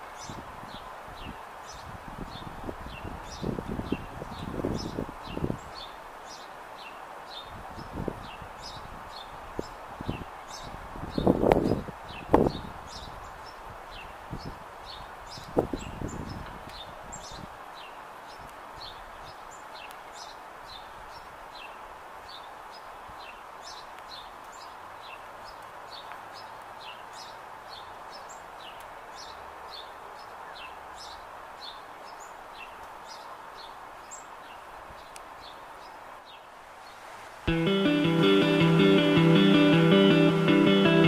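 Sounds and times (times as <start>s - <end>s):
outdoor background hiss: 0.0s - 41.0s
small birds chirping: 0.1s - 37.0s.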